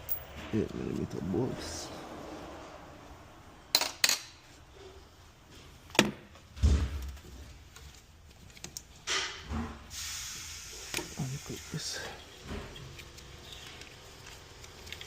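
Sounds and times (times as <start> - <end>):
metal tools clinking: 0.0 - 0.4.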